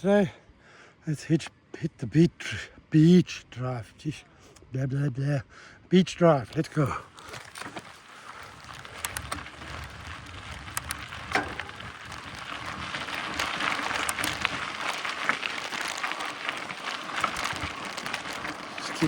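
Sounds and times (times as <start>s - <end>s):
bike tyres crunching on gravel: 6.4s - 19.0s
clicks and rattles: 10.6s - 12.2s.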